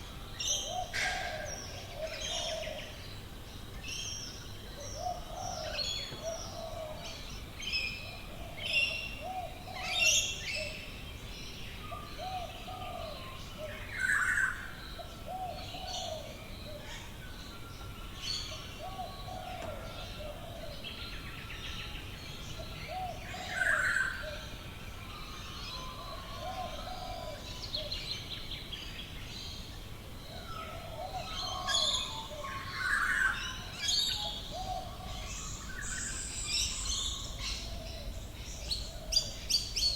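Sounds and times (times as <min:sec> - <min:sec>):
birds chirping and trilling: 0:11.8 - 0:39.9.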